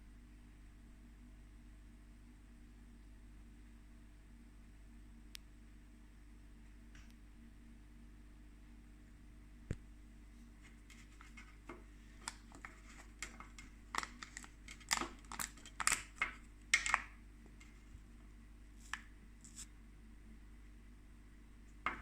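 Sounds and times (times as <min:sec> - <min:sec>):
faint steady hum: 0:00.0 - 0:22.0
fish food package crinkling: 0:10.7 - 0:18.1.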